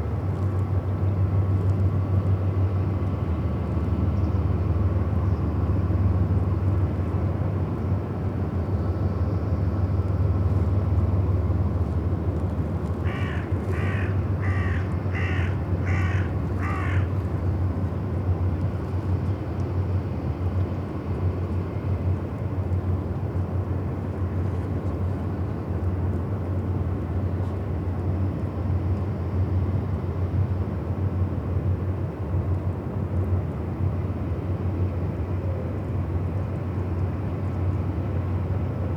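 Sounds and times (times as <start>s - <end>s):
crow cawing: 13.0s - 17.2s.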